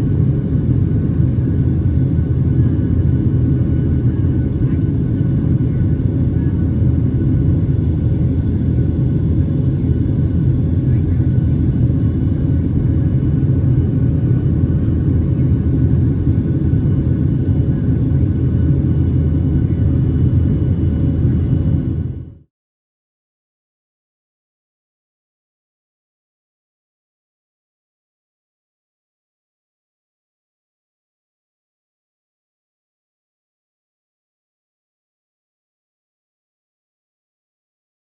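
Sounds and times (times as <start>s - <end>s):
airplane cabin rumble: 0.0s - 22.4s.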